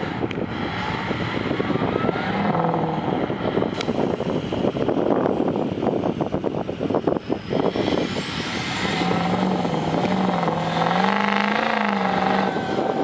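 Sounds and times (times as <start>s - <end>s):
truck engine revving hard: 0.0s - 4.7s, 7.5s - 13.0s.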